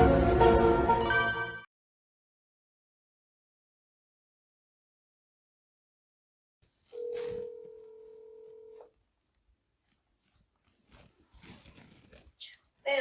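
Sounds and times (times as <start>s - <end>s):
telephone ringback tone: 7.0s - 8.8s.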